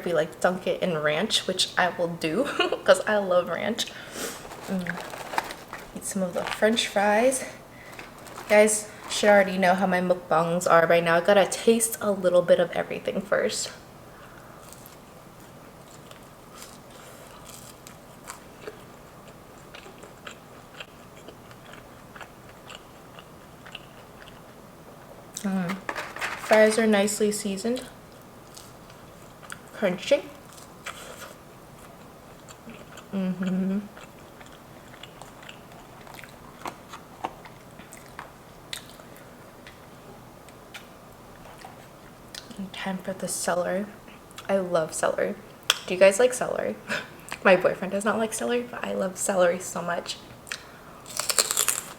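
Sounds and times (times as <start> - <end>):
chewing crunchy fries: 4.3 - 7.0, 7.8 - 9.2, 14.3 - 24.6, 27.8 - 39.8, 50.4 - 51.9.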